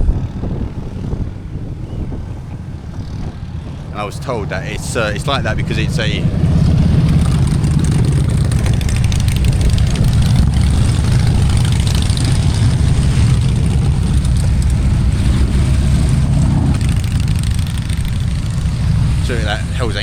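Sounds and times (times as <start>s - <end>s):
car engine and tyres rumbling: 0.0s - 20.0s
light rattle: 6.4s - 19.3s.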